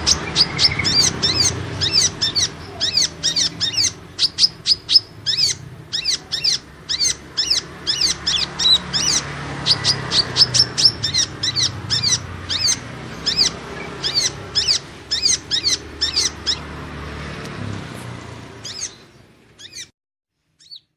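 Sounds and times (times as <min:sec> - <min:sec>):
sunbird high chirps: 0:00.0 - 0:16.7, 0:18.6 - 0:20.9.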